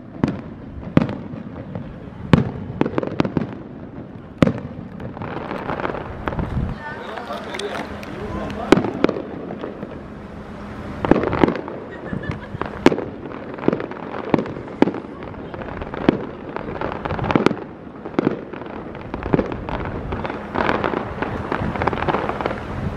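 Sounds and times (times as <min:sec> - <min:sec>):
distant firework bangs: 0:00.0 - 0:22.9.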